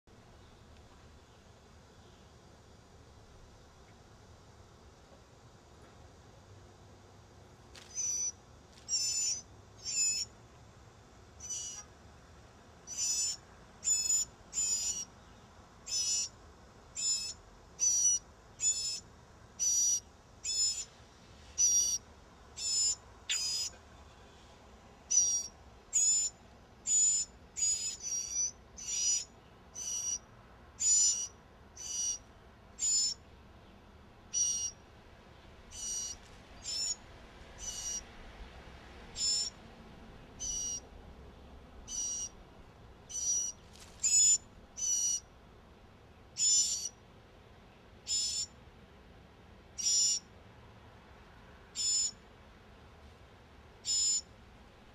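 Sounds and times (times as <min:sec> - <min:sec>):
nestlings begging calls: 0:07.9 - 0:08.3, 0:08.9 - 0:10.3, 0:11.4 - 0:11.8, 0:12.9 - 0:15.1, 0:15.9 - 0:16.3, 0:17.0 - 0:19.0, 0:19.6 - 0:20.9, 0:21.6 - 0:22.0, 0:22.6 - 0:23.7, 0:25.1 - 0:30.2, 0:30.8 - 0:32.2, 0:32.8 - 0:33.2, 0:34.3 - 0:34.8, 0:35.7 - 0:37.0, 0:37.6 - 0:38.0, 0:39.2 - 0:39.6, 0:40.4 - 0:40.8, 0:41.9 - 0:42.4, 0:43.1 - 0:45.2, 0:46.4 - 0:47.0, 0:48.1 - 0:48.5, 0:49.8 - 0:50.2, 0:51.8 - 0:52.2, 0:53.8 - 0:54.2.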